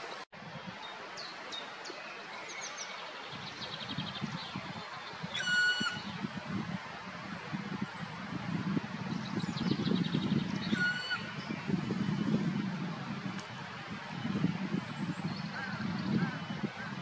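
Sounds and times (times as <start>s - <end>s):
birds chirping: 2.4s - 6.4s, 9.0s - 17.0s
drawn-out bird call: 5.3s - 6.1s, 10.5s - 11.7s.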